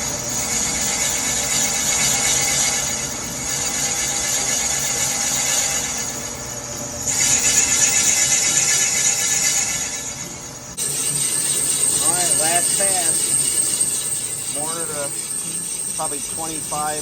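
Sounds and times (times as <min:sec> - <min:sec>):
cutter squealing on metal: 0:00.0 - 0:17.0.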